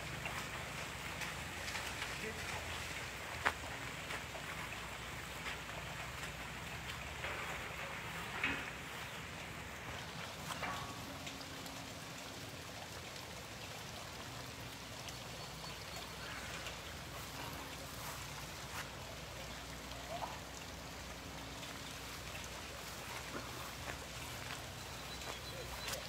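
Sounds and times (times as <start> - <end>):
raindrop ticks: 0.0 - 26.0
steady rain hiss: 0.0 - 26.0.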